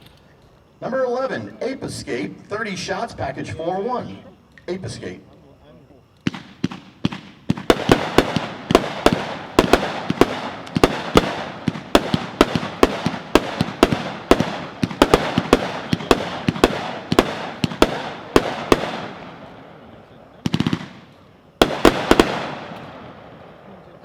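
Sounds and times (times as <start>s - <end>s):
fireworks sharp bangs: 6.2s - 24.0s.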